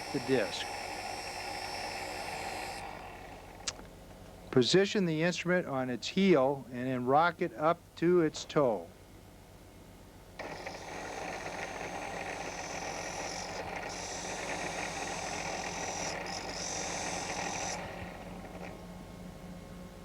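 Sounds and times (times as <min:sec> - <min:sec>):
honing machine grinding steel: 0:00.0 - 0:03.7, 0:10.4 - 0:18.8.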